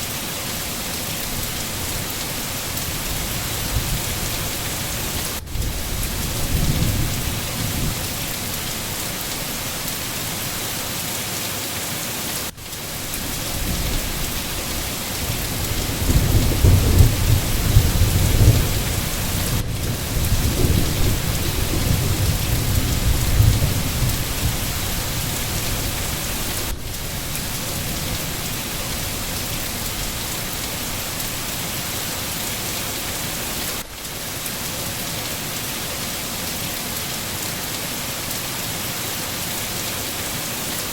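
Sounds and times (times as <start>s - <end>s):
steady rain hiss: 0.0s - 40.9s
low thunder rumble: 1.4s - 9.0s, 12.8s - 31.4s.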